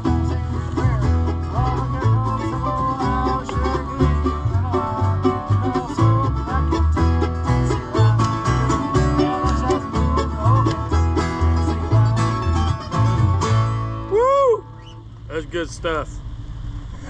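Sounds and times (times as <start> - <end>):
banjo: 0.0 - 14.1
bass notes: 0.0 - 17.0
guitar: 0.0 - 17.0
person calling woo: 13.9 - 15.0.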